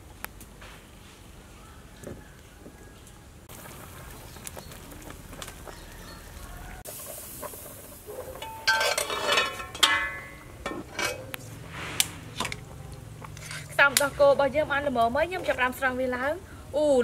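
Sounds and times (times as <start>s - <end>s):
metal pot lid clanking: 8.3s - 11.4s.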